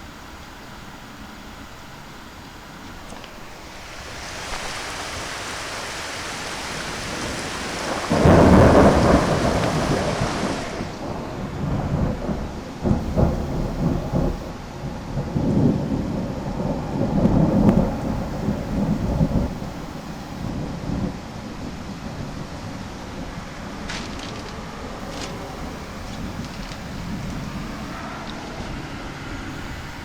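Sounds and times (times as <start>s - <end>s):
rain hiss: 0.0s - 30.0s
thunder rumbling: 3.4s - 23.7s, 24.8s - 28.0s, 29.5s - 30.0s.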